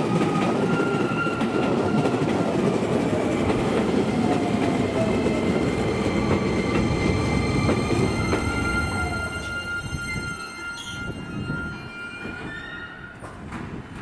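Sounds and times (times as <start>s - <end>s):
train wheels rumbling on rail: 0.0s - 14.0s
thin high wheel squeal: 8.1s - 13.4s.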